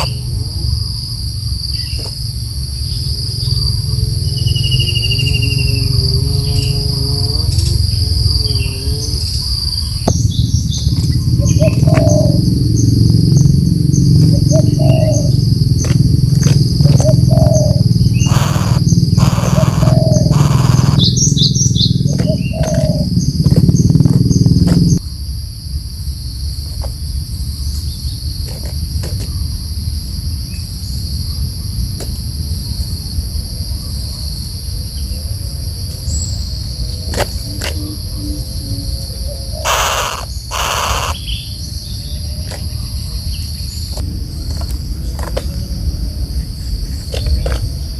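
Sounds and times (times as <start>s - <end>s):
loud low rumble: 0.0s - 25.1s, 40.4s - 47.9s
high insect drone: 0.0s - 47.9s
short bird calls: 1.7s - 12.5s, 16.8s - 23.2s, 39.5s - 41.7s.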